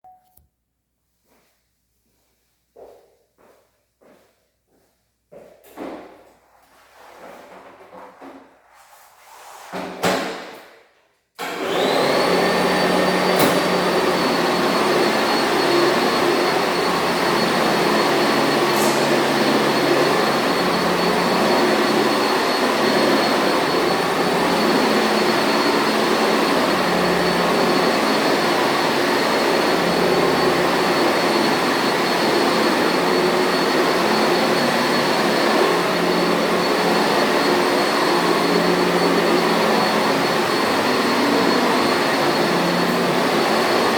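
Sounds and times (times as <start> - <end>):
vacuum cleaner motor whine: 11.4 - 43.9.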